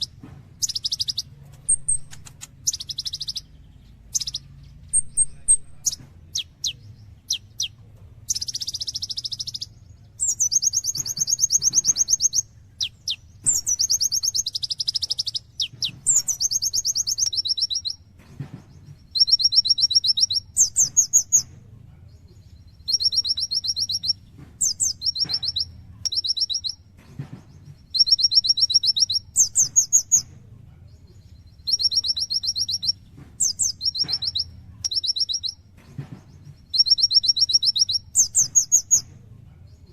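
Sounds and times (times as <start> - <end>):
sharp high bird chips: 0.0 - 18.0, 22.9 - 26.8, 31.7 - 35.6
sunbird singing high trills: 0.0 - 18.0, 19.0 - 21.5, 22.6 - 26.8, 27.6 - 30.3, 31.1 - 35.6, 36.4 - 39.1.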